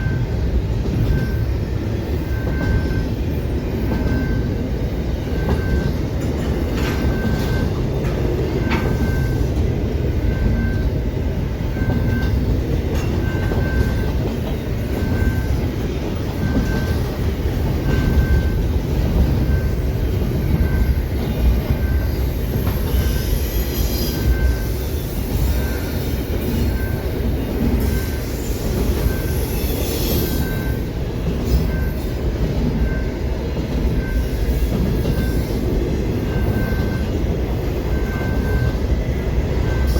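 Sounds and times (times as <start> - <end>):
crossing bell ringing: 0.0 - 39.9
train rumbling: 0.0 - 39.9
train wheel squeals: 0.0 - 39.9.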